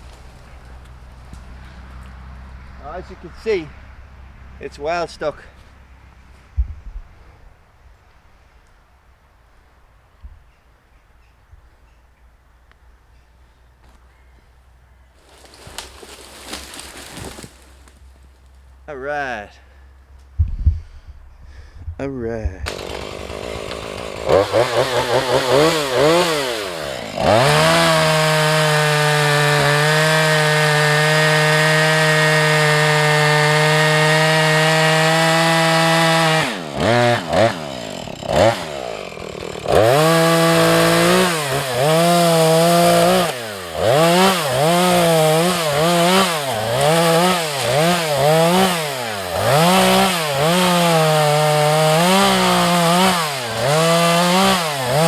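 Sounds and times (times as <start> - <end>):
chainsaw revving: 22.6 - 55.0.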